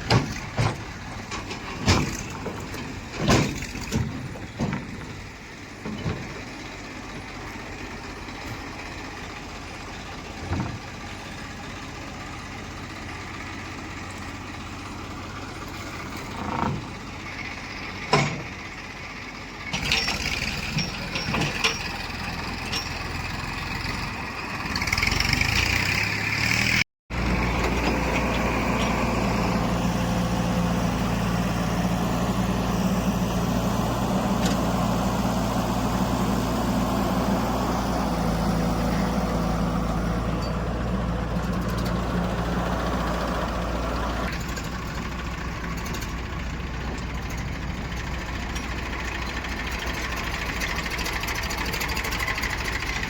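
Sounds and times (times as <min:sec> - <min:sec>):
metal clanking: 0:00.0 - 0:06.6, 0:19.7 - 0:23.5
diesel engines running: 0:00.0 - 0:53.0.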